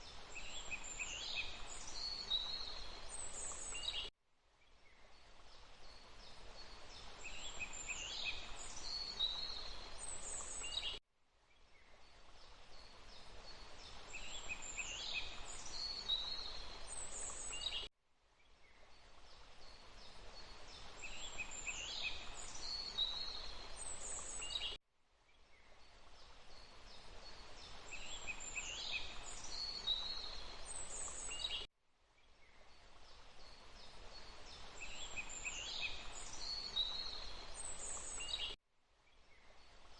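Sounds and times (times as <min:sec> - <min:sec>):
running water rushing: 0:00.0 - 0:03.8, 0:05.4 - 0:10.8, 0:12.2 - 0:17.7, 0:19.1 - 0:24.5, 0:26.0 - 0:31.4, 0:32.9 - 0:38.4.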